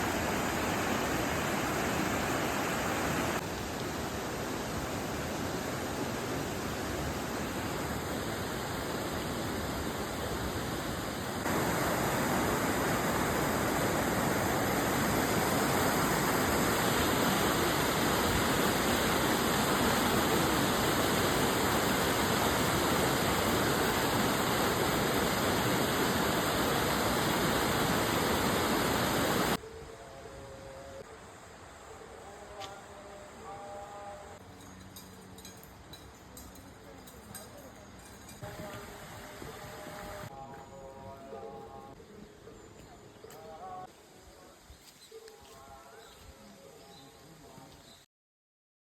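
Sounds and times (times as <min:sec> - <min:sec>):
stream water pouring over rocks: 0:00.0 - 0:29.6.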